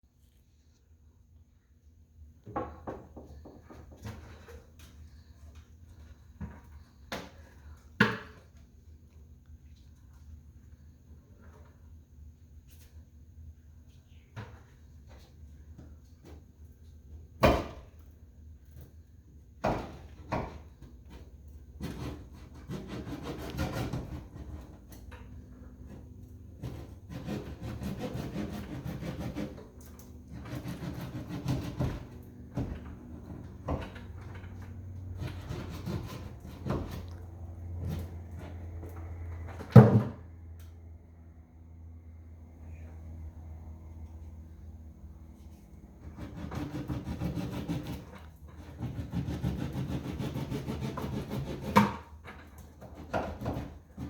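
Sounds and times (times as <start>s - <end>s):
scraping on hard surface: 20.4s - 39.4s, 46.0s - 54.0s.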